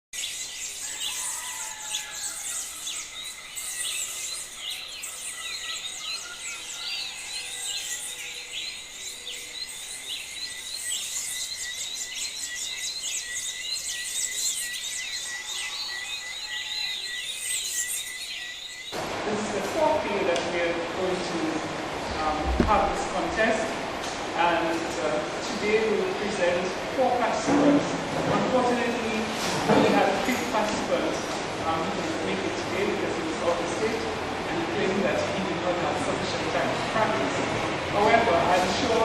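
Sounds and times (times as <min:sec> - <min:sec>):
many birds chirping: 0:00.1 - 0:20.2.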